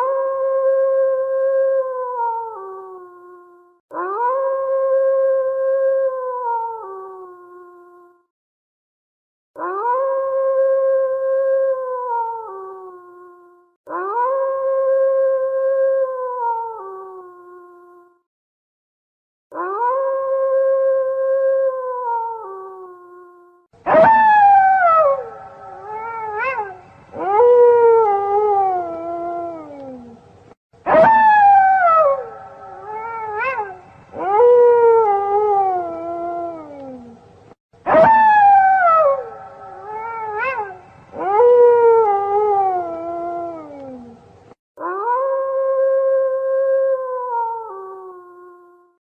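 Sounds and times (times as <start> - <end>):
wolf howling: 0.0 - 7.9, 9.6 - 13.3, 13.9 - 17.8, 19.5 - 30.2, 30.8 - 37.2, 37.9 - 44.2, 44.8 - 48.7
wolf yelp: 23.8 - 30.2, 30.8 - 44.2.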